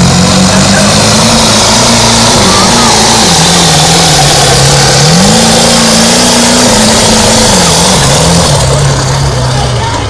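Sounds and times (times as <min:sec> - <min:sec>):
truck engine running hard: 0:00.0 - 0:10.0.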